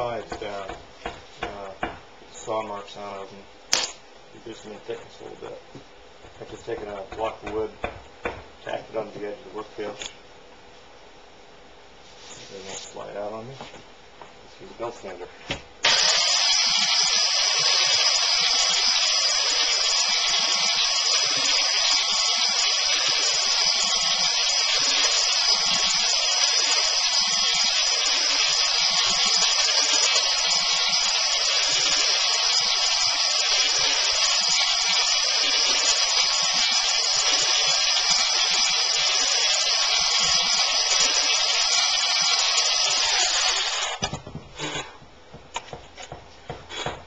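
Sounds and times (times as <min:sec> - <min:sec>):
belt sander sanding wood: 0:15.8 - 0:44.0.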